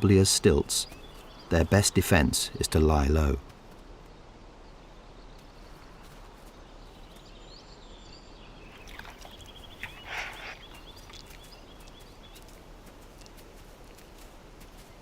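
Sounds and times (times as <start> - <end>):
small birds calling: 0.0 - 14.2
rustling: 8.7 - 11.5.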